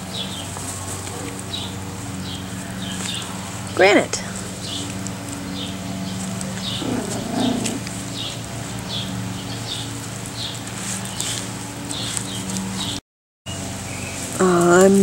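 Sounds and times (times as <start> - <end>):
steady low hum: 0.0 - 15.0
bird chirping: 1.4 - 14.3.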